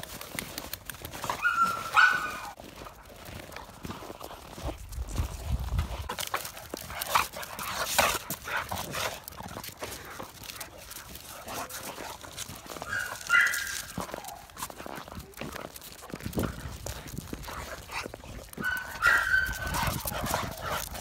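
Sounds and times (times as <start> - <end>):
dogs scuffling: 0.0 - 21.0
high-pitched dog whine: 1.4 - 2.6, 18.6 - 20.6.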